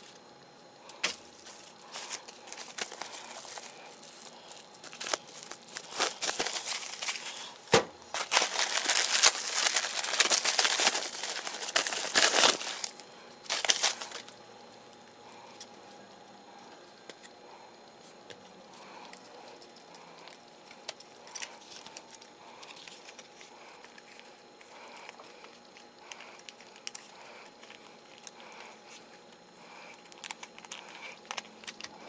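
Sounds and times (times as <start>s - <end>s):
packaging crinkling and rustling: 1.0s - 14.4s, 19.0s - 32.0s.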